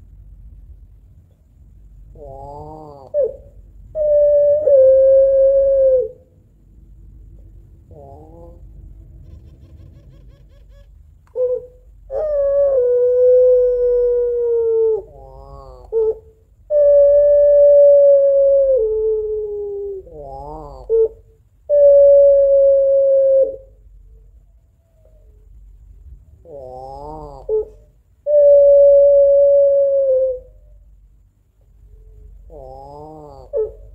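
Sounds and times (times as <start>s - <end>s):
dove crying calls: 2.1s - 6.4s, 7.8s - 25.5s, 26.4s - 30.9s, 31.8s - 33.9s
dove wavering warbles: 2.2s - 6.2s, 7.9s - 23.8s, 31.9s - 33.9s.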